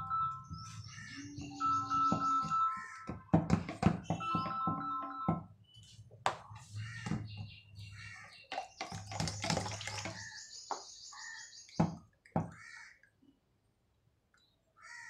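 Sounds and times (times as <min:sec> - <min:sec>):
fast high-pitched bird trill: 0:00.0 - 0:02.8
small birds chirping: 0:00.0 - 0:14.8.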